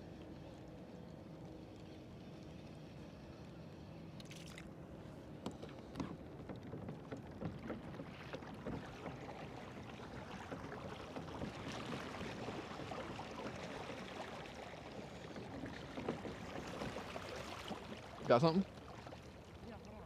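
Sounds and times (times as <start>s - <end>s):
water lapping around a kayak: 0.0s - 20.0s
small knocks and ticks: 5.4s - 9.2s, 15.0s - 17.1s.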